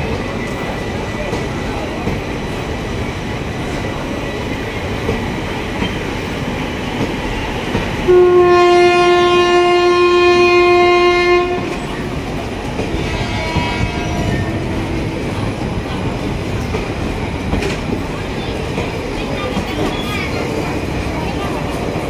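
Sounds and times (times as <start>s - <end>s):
train wheels clickety-clack: 0.0s - 22.0s
train horn blast: 8.1s - 11.8s, 12.8s - 15.1s.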